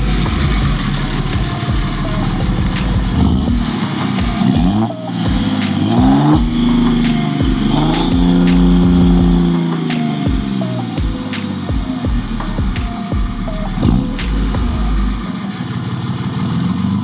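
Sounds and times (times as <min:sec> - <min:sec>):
vehicle engine revving: 0:00.0 - 0:10.2.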